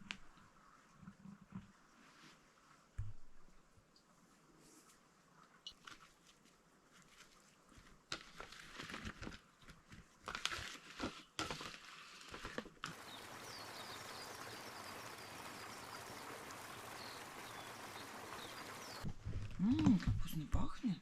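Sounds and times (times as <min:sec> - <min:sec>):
running water hissing: 0:12.9 - 0:19.1
small birds chirping faintly: 0:12.9 - 0:21.0.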